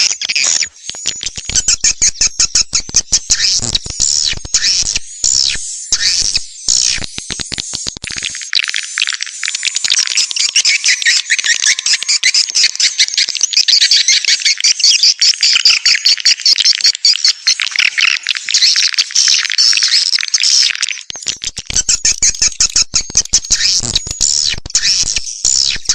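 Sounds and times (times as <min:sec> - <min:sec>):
swiftlets twittering: 0:00.6 - 0:14.6.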